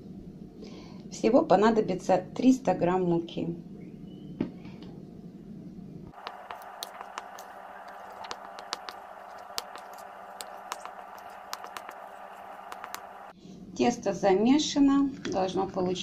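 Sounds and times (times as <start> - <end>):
faint steady hum: 3.6 - 13.8.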